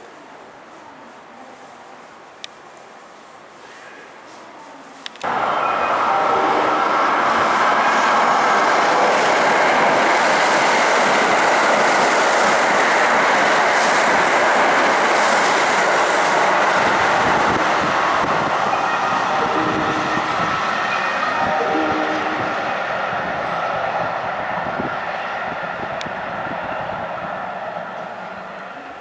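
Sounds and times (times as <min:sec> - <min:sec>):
electric train passing at speed: 0:05.1 - 0:29.0
steady tones: 0:18.5 - 0:23.2.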